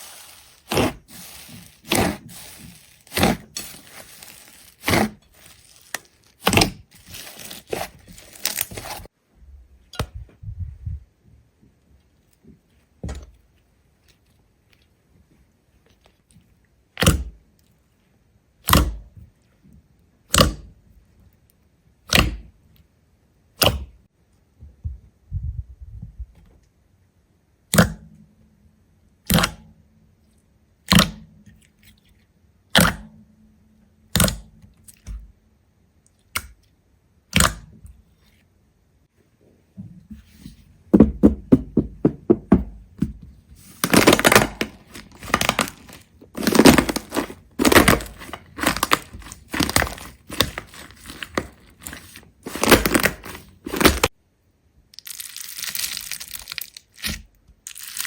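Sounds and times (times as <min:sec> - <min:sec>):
dense crunching and crackling: 0:00.0 - 0:09.2, 0:43.6 - 0:54.2, 0:54.9 - 0:58.0.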